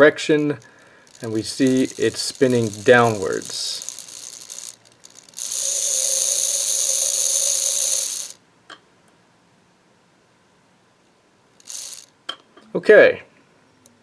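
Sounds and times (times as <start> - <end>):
small electric motor whirring: 0.6 - 8.4, 11.6 - 12.1.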